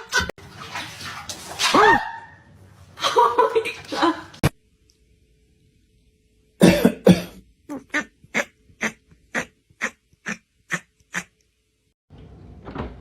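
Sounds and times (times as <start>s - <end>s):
person coughing: 6.6s - 8.0s.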